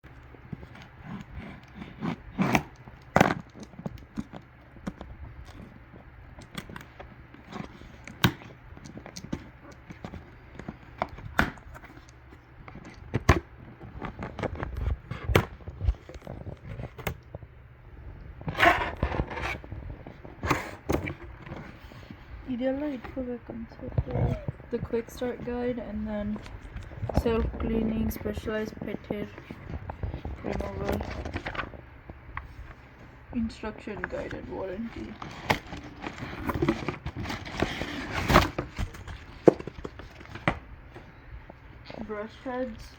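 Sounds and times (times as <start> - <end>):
rustling and clattering: 0.0 - 42.9
packaging being handled: 25.2 - 33.1, 34.0 - 41.6.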